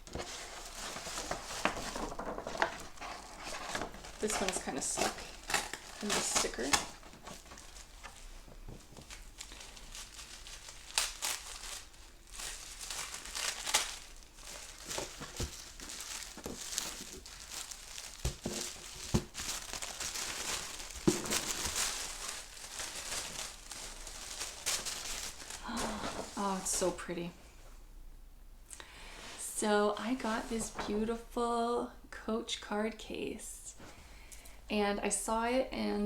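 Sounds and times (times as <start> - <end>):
wrapping paper crinkling: 0.0 - 27.0
packaging knocks: 14.6 - 25.4.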